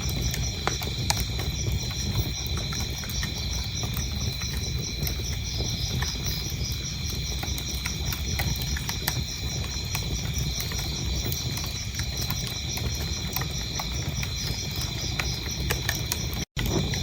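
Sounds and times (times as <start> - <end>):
crickets chirping: 0.0 - 17.0
wood fire crackling: 0.0 - 17.0.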